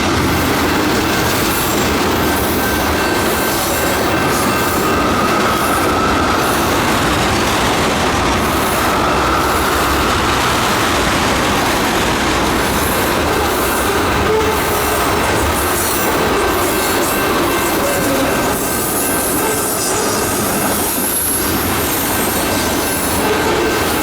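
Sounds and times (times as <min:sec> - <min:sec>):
train wheels rumbling on rail: 0:00.0 - 0:24.0
wheel squeal: 0:01.5 - 0:07.0, 0:13.6 - 0:24.0.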